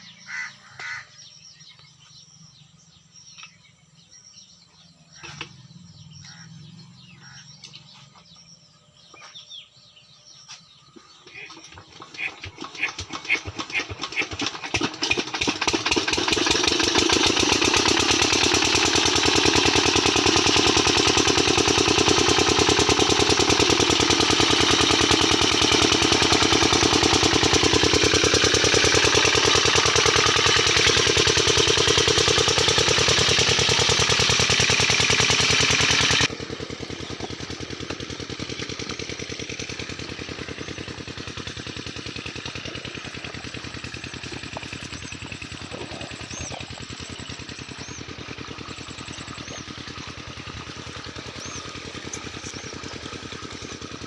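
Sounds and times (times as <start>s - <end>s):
water pump engine running: 10.9s - 54.0s.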